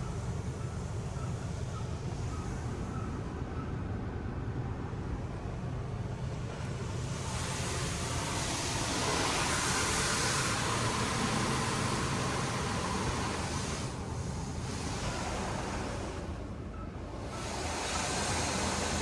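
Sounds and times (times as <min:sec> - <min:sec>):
car wash spray hissing: 0:00.0 - 0:03.5, 0:04.7 - 0:19.0.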